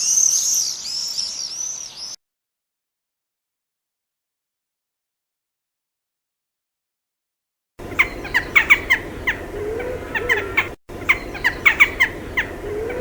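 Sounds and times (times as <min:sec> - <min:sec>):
low wavering hoot: 0:07.8 - 0:13.0
sharp bird calls: 0:07.8 - 0:13.0.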